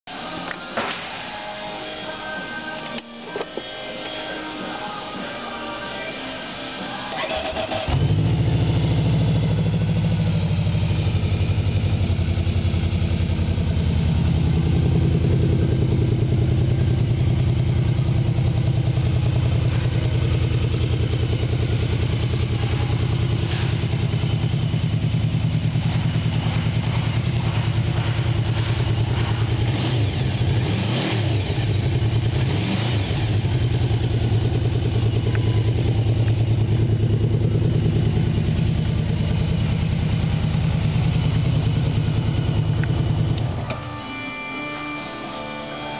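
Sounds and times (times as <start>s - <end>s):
motorcycle engine idling: 7.2s - 43.8s.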